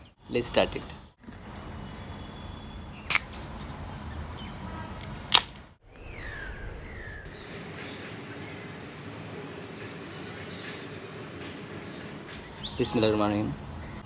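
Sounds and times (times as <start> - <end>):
sharp clicks: 5.0 - 5.6
bird chirping: 5.9 - 14.0
steady background hum: 7.3 - 14.0.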